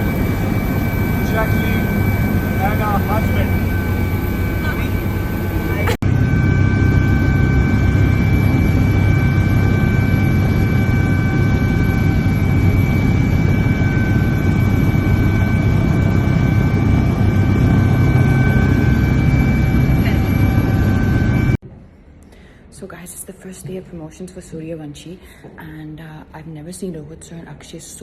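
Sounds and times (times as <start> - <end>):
helicopter engine and rotors: 0.0 - 21.6.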